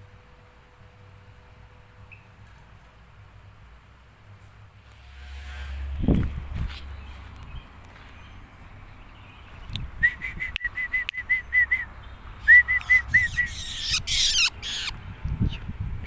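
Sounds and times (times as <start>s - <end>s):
bird whistled notes: 10.0s - 14.9s
bird harsh scratchy chatter: 12.9s - 15.0s.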